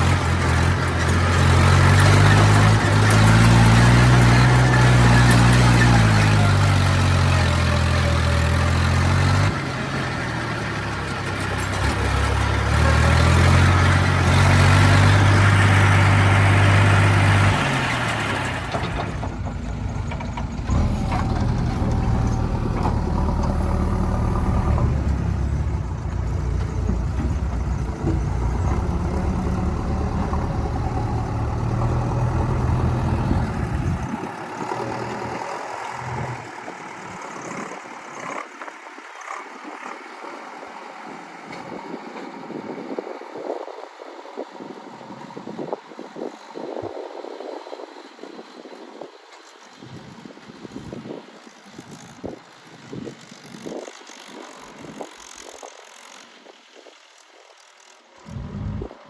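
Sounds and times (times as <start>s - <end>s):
heavy diesel engines running: 0.0s - 57.2s, 58.0s - 59.0s.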